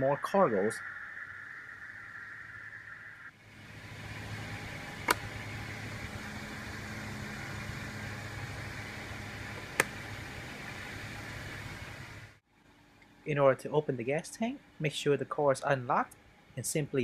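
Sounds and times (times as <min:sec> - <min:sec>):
car engine idling: 0:03.4 - 0:12.4
sharp clicks: 0:05.0 - 0:05.3.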